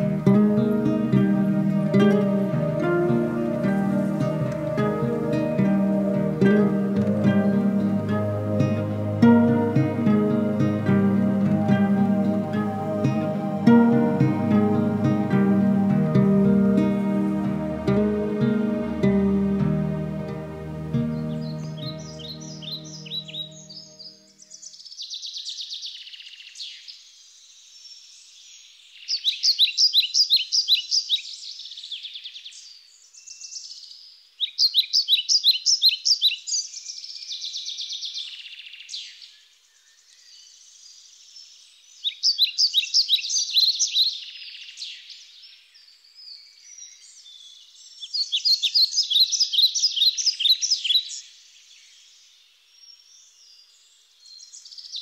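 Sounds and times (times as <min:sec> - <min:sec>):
soft bird chirping: 0:00.0 - 0:26.5
songbird singing repeated notes: 0:00.0 - 0:55.0.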